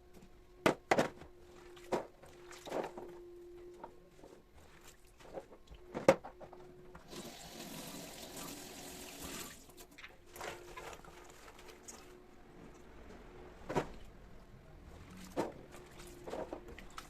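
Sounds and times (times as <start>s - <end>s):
water running from tap: 7.1s - 9.7s.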